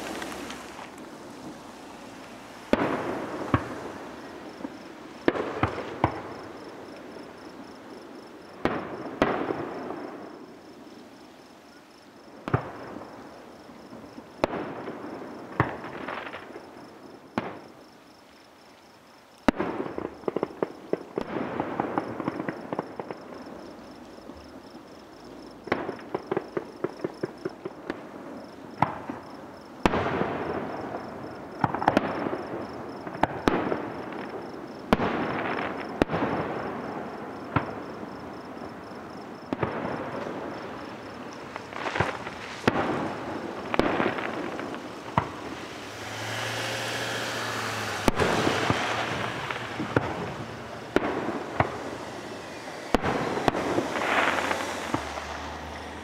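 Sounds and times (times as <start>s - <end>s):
rapid crackling pops: 0.0s - 6.5s, 39.5s - 46.0s, 47.3s - 56.0s
echoing rumble: 42.8s - 56.0s.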